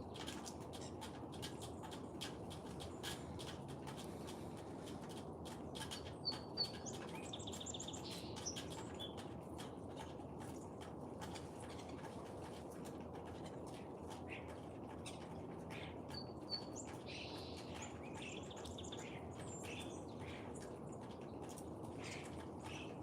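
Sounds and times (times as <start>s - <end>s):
songbirds chirping: 0.1s - 23.0s.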